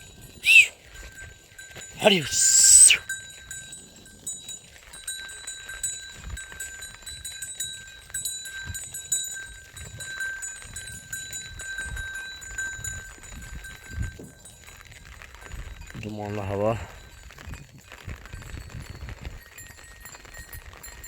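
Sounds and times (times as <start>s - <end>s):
sheep bleating: 2.0s - 3.0s.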